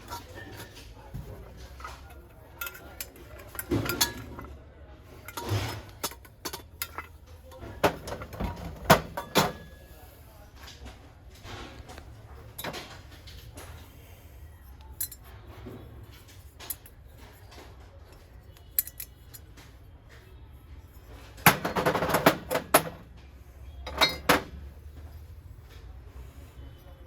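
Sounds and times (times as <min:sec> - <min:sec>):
metal utensils clinking: 0:00.0 - 0:09.7, 0:15.0 - 0:15.3, 0:23.9 - 0:24.5.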